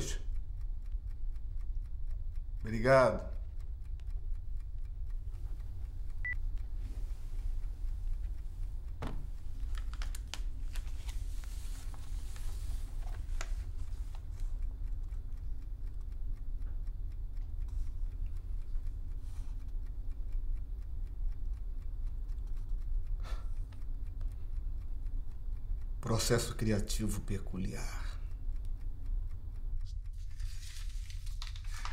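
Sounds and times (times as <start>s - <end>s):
low steady hum: 0.0s - 31.9s
papers rustling: 9.0s - 13.6s, 30.2s - 31.9s.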